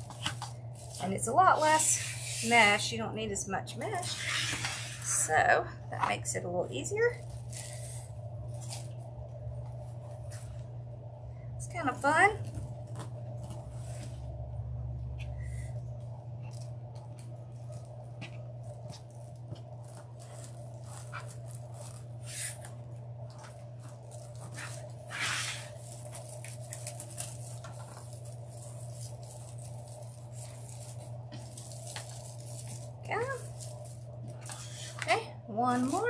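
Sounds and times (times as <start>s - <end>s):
mesh rustling and crinkling: 0.0s - 2.9s, 7.0s - 10.8s, 16.1s - 36.0s
steady low hum: 0.0s - 36.0s.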